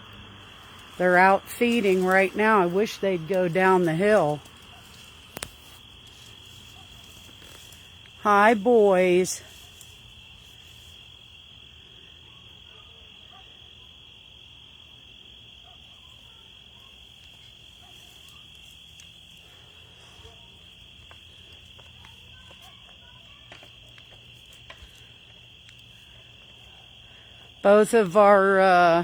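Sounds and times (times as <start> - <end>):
crickets chirping: 0.0 - 29.0
faint ticks: 4.4 - 8.2.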